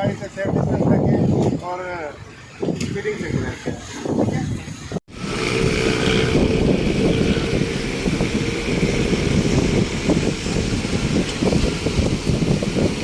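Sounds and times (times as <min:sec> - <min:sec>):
wind buffeting microphone: 0:00.0 - 0:13.0
vehicle driving on wet road: 0:05.1 - 0:13.0.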